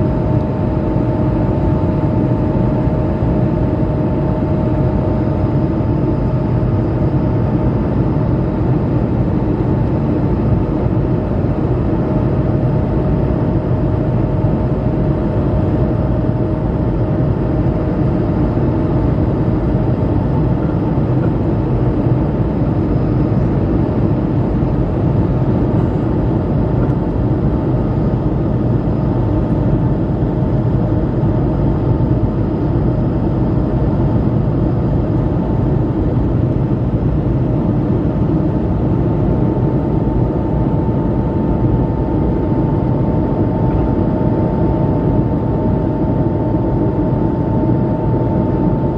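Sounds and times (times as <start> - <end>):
cabin airflow: 0.0 - 48.9
jet engine drone in cabin: 0.0 - 48.9.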